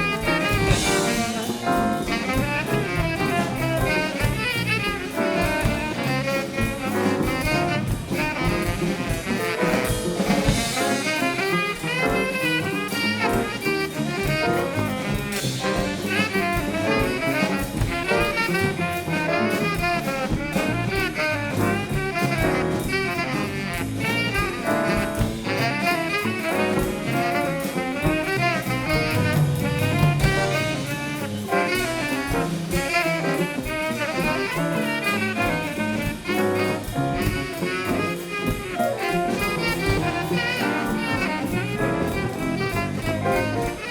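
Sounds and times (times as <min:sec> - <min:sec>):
drum kit: 0:00.0 - 0:43.9
live jazz band playing: 0:00.0 - 0:43.9
saxophone: 0:00.0 - 0:43.9.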